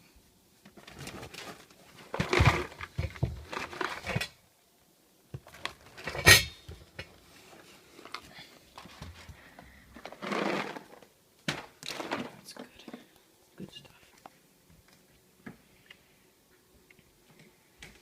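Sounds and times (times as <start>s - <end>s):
food packages rustling and clattering: 0.7s - 4.4s, 5.3s - 13.1s.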